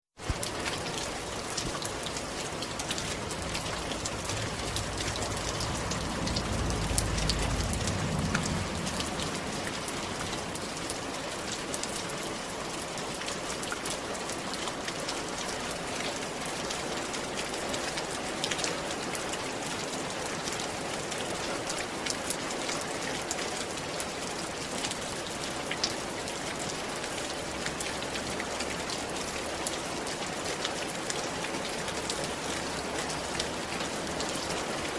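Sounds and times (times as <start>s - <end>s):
rain on a roof: 0.0s - 34.9s
low rumble: 2.3s - 11.2s.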